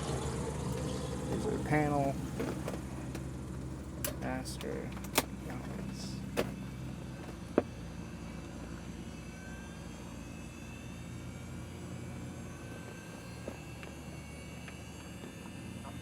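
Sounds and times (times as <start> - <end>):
faint high whine rising: 5.6 - 16.0.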